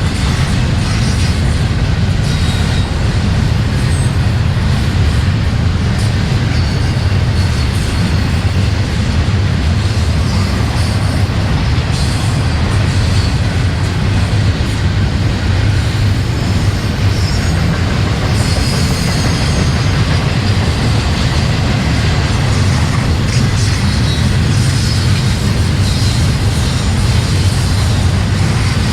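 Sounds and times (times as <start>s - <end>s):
train wheels rumbling on track: 0.0s - 28.9s
high wheel squeal: 15.6s - 28.9s.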